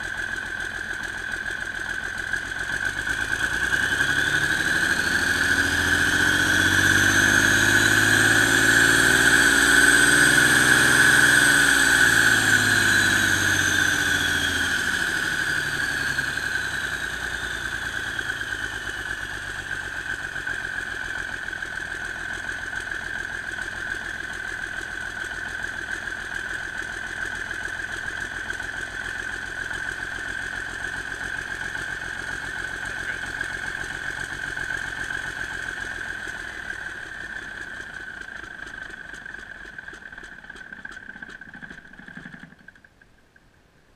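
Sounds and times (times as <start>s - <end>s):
diesel engine revving and idling: 0.0s - 42.6s
turbo whine: 2.5s - 43.0s.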